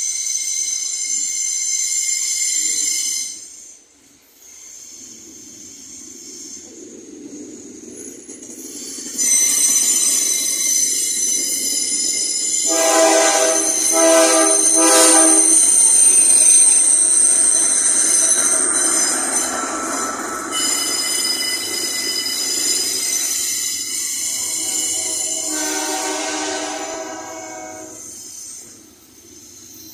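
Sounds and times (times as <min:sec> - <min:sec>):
freight train rolling by: 0:00.0 - 0:29.9
wheels squealing on rails: 0:00.0 - 0:29.9
locomotive horn: 0:12.7 - 0:15.6, 0:24.4 - 0:28.0.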